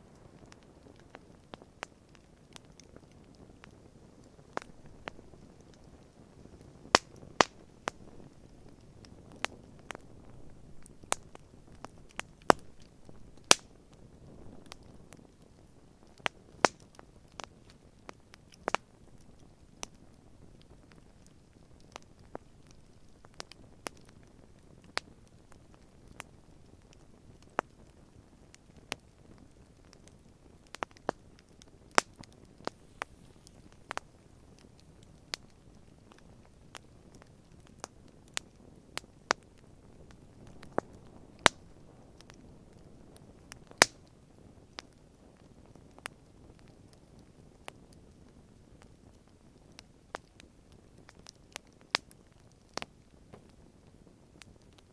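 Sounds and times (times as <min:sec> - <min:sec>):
campfire crackling: 0:00.0 - 0:54.9
hiss of burning: 0:32.6 - 0:34.9.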